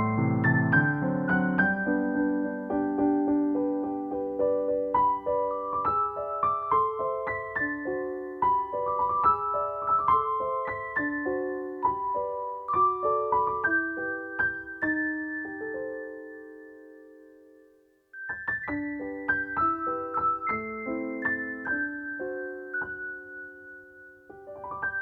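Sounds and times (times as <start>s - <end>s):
gentle piano music: 0.0s - 25.0s.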